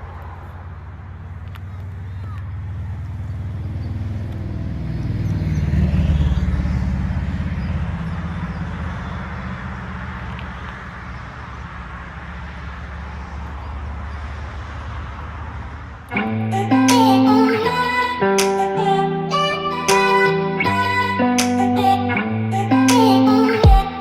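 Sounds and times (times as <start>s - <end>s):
guitar music: 16.1s - 24.0s.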